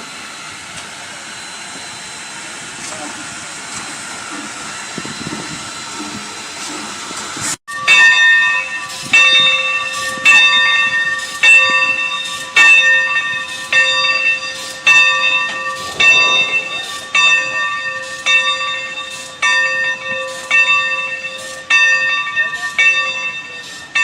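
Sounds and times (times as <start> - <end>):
steam locomotive bell ringing: 7.7 - 24.0.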